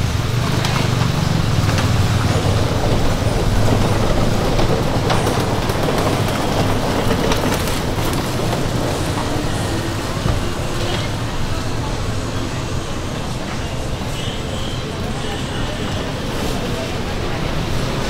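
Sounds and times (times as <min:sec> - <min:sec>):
rattles and clicks: 0:00.0 - 0:11.5
tyres and motor rumbling: 0:00.0 - 0:18.0.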